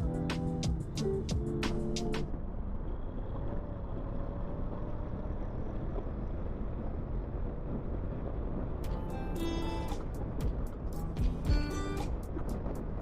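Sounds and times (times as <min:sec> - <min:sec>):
music: 0:00.0 - 0:02.3, 0:08.8 - 0:13.0.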